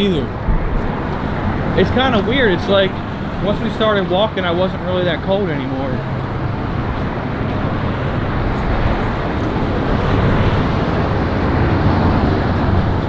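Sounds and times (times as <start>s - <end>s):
road traffic: 0.0s - 13.0s
wind blowing across microphone: 0.0s - 13.0s.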